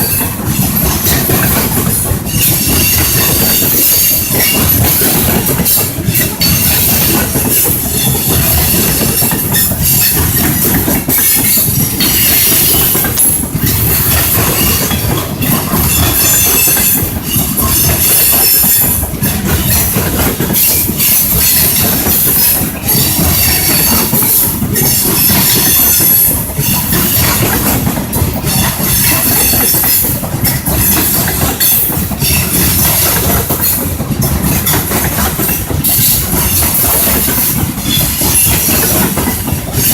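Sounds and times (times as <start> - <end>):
train rumbling along track: 0.0 - 39.9
wheel clacks over rail joints: 0.0 - 39.9
high-pitched wheel squeal: 2.3 - 19.0.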